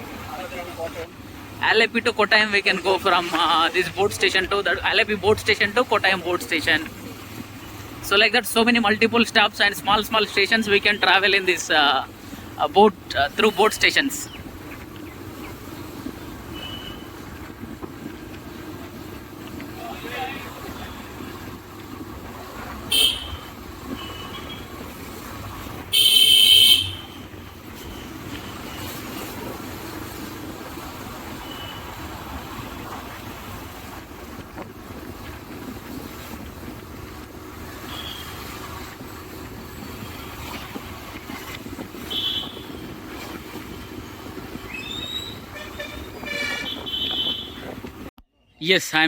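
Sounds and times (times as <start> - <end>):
traffic rumble: 0.0 - 48.2
car horn blasts: 16.5 - 17.1, 22.8 - 24.7, 25.9 - 27.3, 37.9 - 38.4, 42.0 - 42.8, 45.5 - 47.7.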